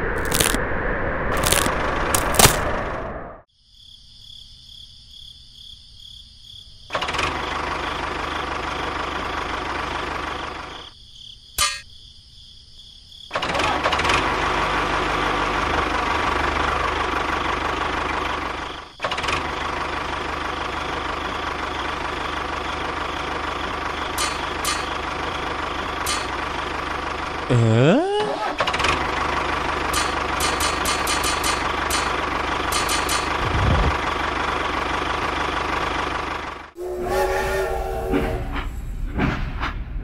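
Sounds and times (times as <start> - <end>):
tractor engine running: 6.9 - 10.9, 13.4 - 27.8, 28.4 - 36.8.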